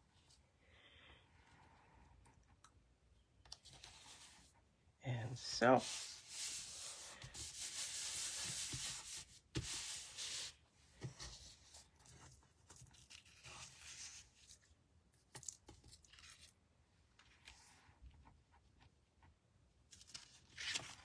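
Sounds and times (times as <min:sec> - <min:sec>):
paper rustling: 0:05.6 - 0:14.7, 0:19.9 - 0:21.0
rubbing of cardstock: 0:05.7 - 0:11.5.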